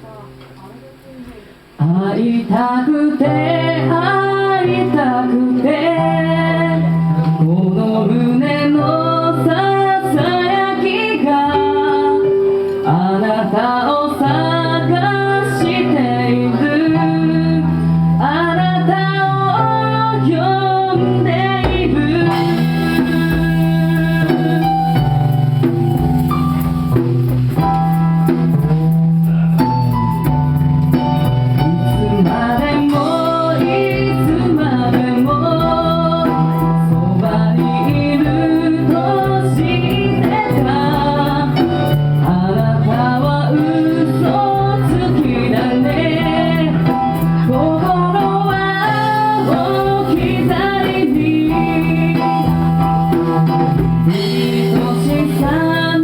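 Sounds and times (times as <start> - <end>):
live band playing pop ballad: 0.0 - 56.0
drums steady beat: 21.6 - 56.0.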